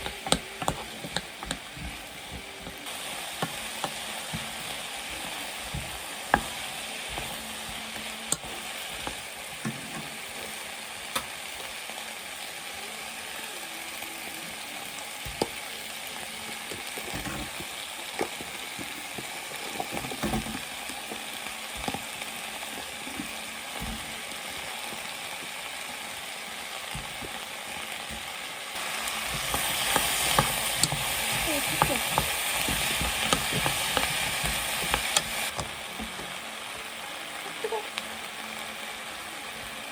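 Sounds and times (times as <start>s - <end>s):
utensil clicking against pan: 0.0s - 11.4s, 29.3s - 36.3s
food sizzling in a pan: 0.0s - 39.9s.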